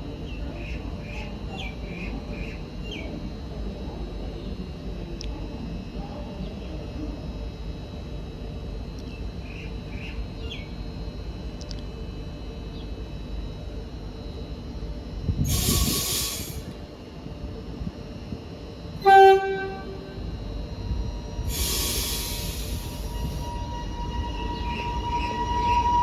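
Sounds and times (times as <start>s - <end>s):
train low rumble: 0.0s - 26.0s
air hissing: 15.4s - 16.7s, 21.5s - 23.4s
train horn blast: 19.0s - 20.3s, 22.0s - 26.0s.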